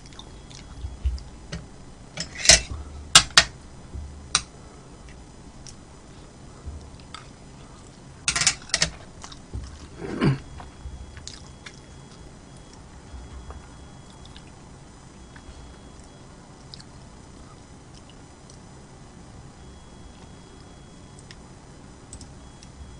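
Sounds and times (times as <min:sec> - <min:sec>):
person chewing food: 0:00.0 - 0:01.5, 0:04.1 - 0:08.1, 0:09.0 - 0:14.6, 0:15.2 - 0:18.7.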